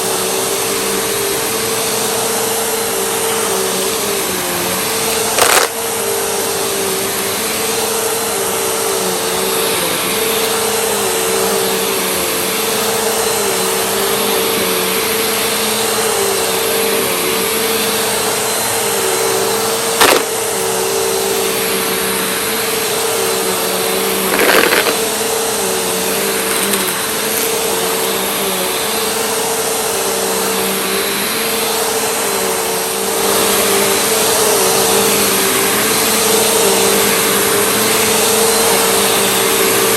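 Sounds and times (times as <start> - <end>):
vacuum cleaner running: 0.0 - 39.9
rattling burst: 24.3 - 25.1.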